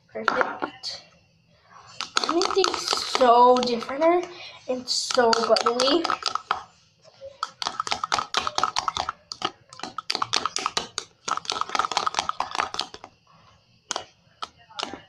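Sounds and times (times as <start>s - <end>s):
sticky slime squelches: 1.8s - 13.2s.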